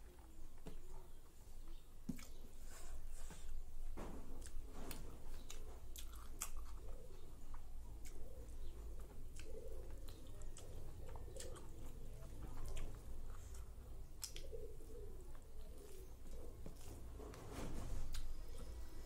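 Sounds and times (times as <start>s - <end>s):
wet chewing: 4.4s - 16.9s
lip smacks and clicks: 13.5s - 14.6s.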